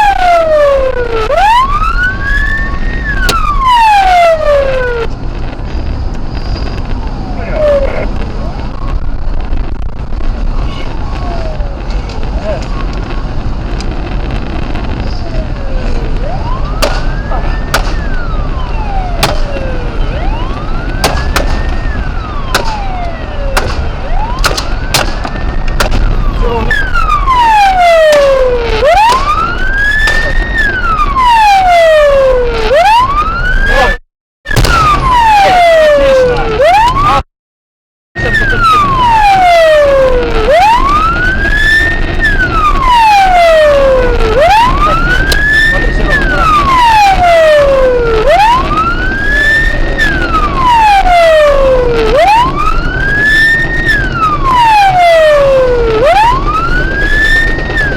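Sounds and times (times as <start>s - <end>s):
police siren wailing: 0.0s - 5.5s, 6.3s - 37.3s, 38.2s - 57.9s
low vehicle rumble: 0.0s - 37.3s, 38.2s - 57.9s
sharp cracks: 16.2s - 18.4s, 19.1s - 19.8s, 20.4s - 31.2s, 34.5s - 35.4s.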